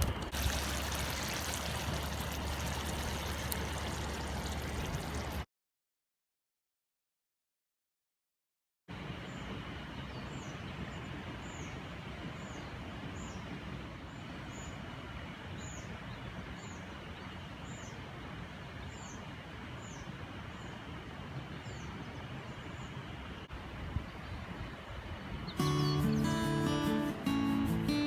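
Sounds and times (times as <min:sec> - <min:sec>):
river water flowing: 0:00.0 - 0:05.4.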